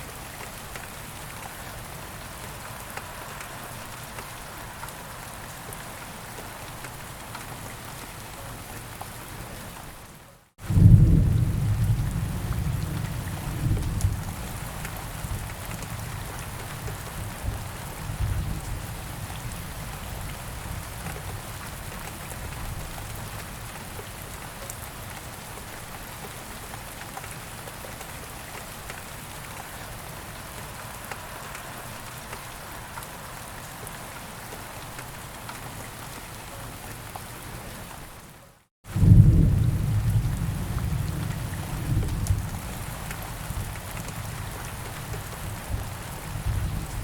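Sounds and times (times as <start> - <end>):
steady rain falling: 0.0 - 47.0
distant thunder rumble: 38.9 - 47.0.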